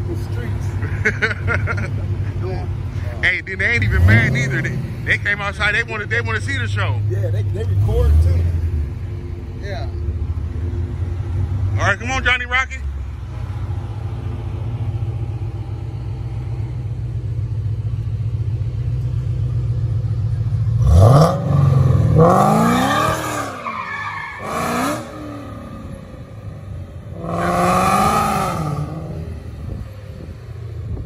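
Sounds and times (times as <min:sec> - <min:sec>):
car engine rumbling and revving: 0:00.0 - 0:31.0.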